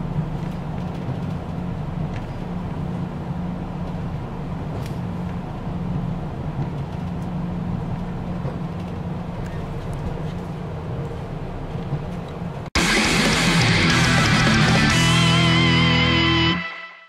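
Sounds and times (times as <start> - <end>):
rumble of moving train: 0.0 - 12.7
railcar engine hum: 0.0 - 16.6.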